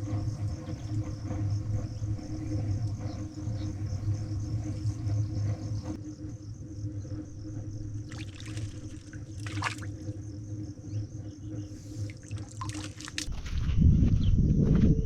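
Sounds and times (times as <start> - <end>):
insects trilling: 0.0 - 13.3
splashing and rustling: 8.0 - 10.1, 11.8 - 13.6
creek water trickling: 8.0 - 10.2, 11.7 - 13.3.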